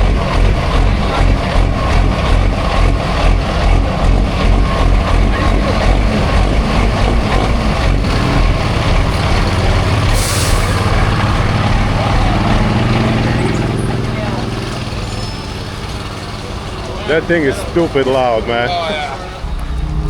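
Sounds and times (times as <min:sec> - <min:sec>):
diesel truck engine rumbling: 0:00.0 - 0:20.0
air hiss: 0:10.0 - 0:11.0.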